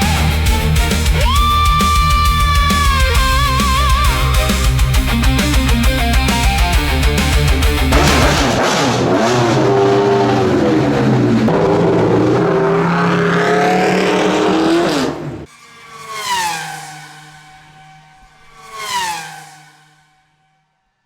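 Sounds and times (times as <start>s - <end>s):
race car engine at full throttle: 0.0s - 20.0s
car passing by: 12.6s - 20.5s.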